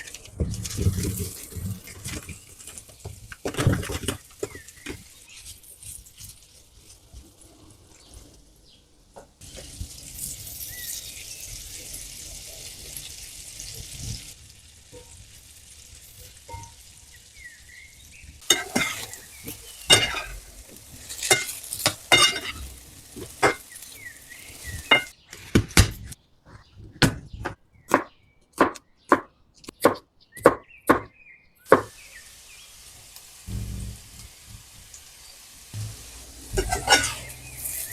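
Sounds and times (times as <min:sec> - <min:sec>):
faint steady hiss: 0:00.0 - 0:25.2, 0:31.6 - 0:37.9
kitchen utensil scraping: 0:18.4 - 0:27.0, 0:35.8 - 0:37.9
sharp utensil strikes: 0:35.8 - 0:37.3.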